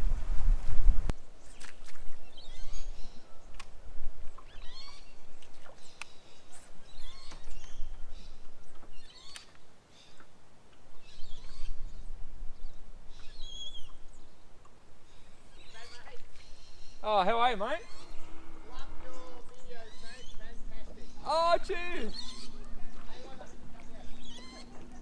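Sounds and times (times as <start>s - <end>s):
birds chirping: 1.1s - 25.0s
low rumble: 17.8s - 21.3s.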